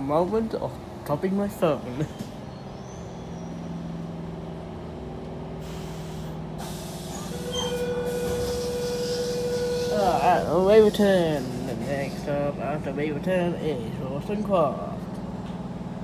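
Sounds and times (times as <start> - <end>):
train low hum inside carriage: 0.0 - 16.0
train motors whining: 5.7 - 13.6.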